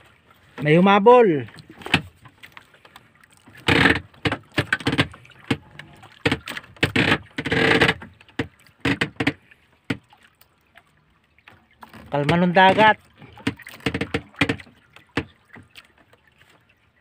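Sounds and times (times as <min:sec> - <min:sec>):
knocks and scrapes on wooden boat: 0:01.5 - 0:10.1, 0:11.8 - 0:15.7.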